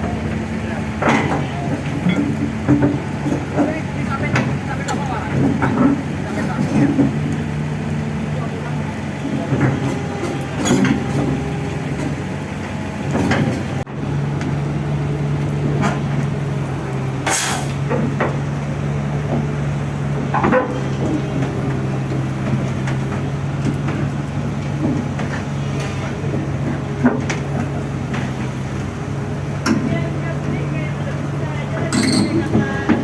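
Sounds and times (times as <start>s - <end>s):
diesel engine running: 0.0s - 33.0s
metallic clanks of machinery: 1.0s - 7.2s, 9.2s - 12.2s, 17.2s - 18.4s, 31.8s - 33.0s.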